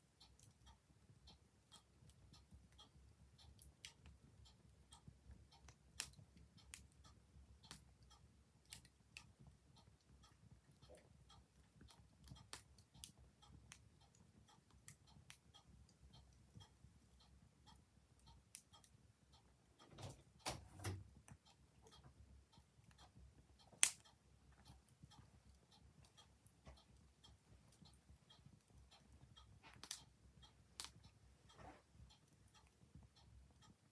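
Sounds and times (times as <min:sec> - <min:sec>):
clock ticking: 0:00.0 - 0:33.9.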